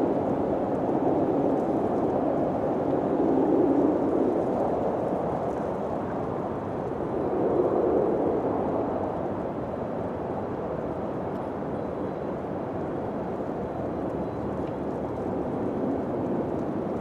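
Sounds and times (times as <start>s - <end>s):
low wind gusting: 0.0s - 11.7s.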